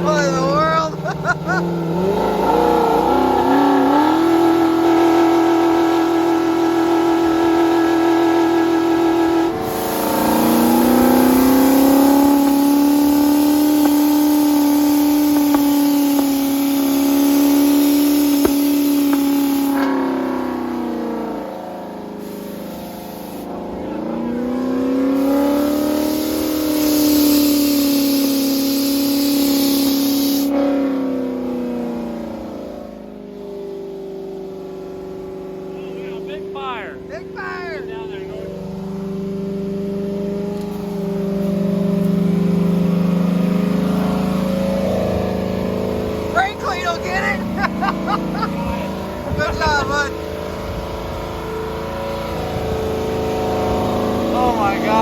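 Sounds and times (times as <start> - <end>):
car engine at high revs: 0.0 - 55.0
hiss: 9.6 - 19.8, 22.2 - 23.5, 25.2 - 30.6.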